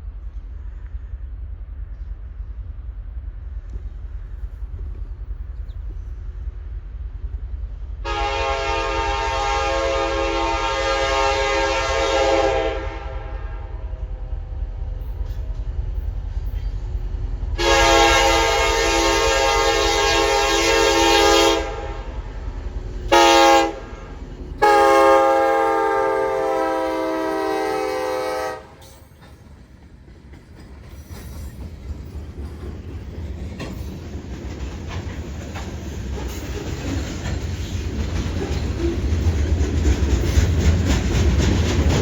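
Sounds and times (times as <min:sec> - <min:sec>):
steady low rumble: 0:00.0 - 0:08.0
locomotive air horn blasts: 0:08.0 - 0:13.9, 0:17.6 - 0:22.2, 0:23.1 - 0:28.9.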